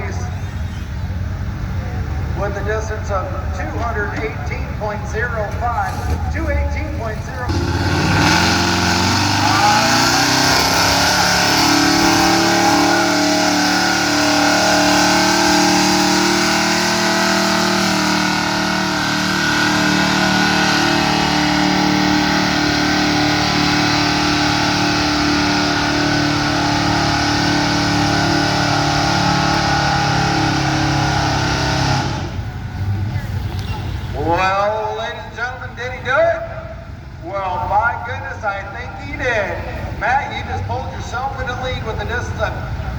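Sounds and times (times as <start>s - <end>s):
pickup truck engine at full throttle: 6.1s - 34.3s.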